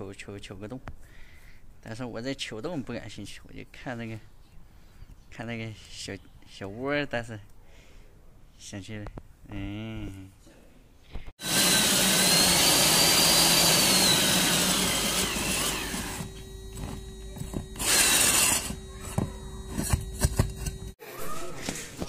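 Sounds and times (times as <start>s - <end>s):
power drill boring through wall: 11.4s - 21.0s.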